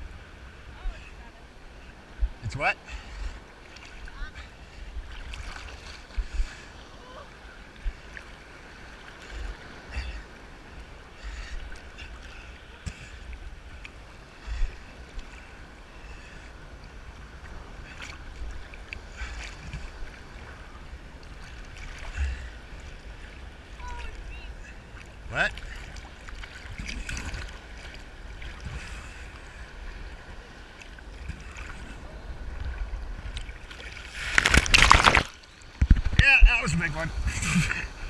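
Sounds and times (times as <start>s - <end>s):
sea surf sloshing: 0.0s - 38.0s
sharp water splashes: 33.3s - 37.0s.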